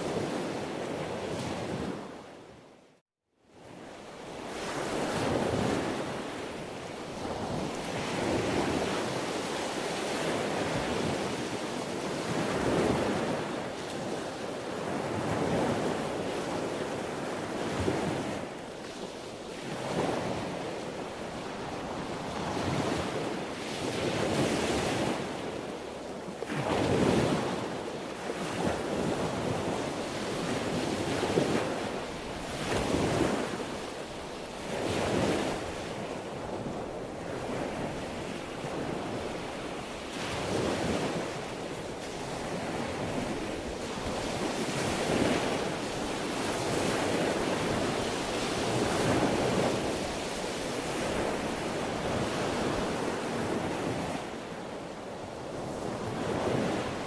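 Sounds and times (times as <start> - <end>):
sea waves breaking: 26.4 - 57.0.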